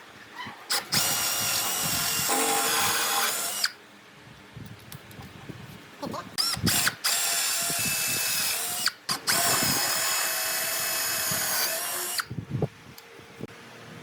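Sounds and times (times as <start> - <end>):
power tool whining: 0.7 - 3.8, 6.4 - 12.3.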